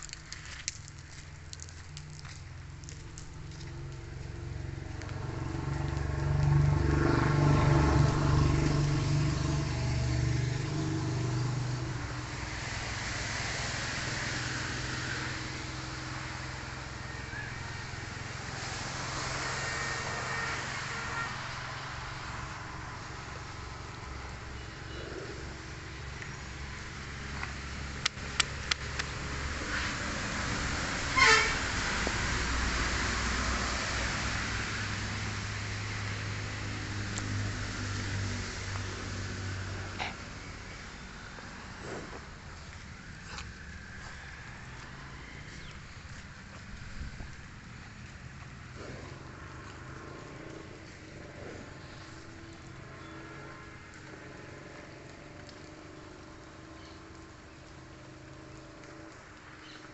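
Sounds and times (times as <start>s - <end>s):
traffic hum: 0.0s - 59.9s
vehicle engine passing: 1.2s - 59.9s
sharp clicks: 27.4s - 29.2s
horn toot: 31.1s - 31.6s.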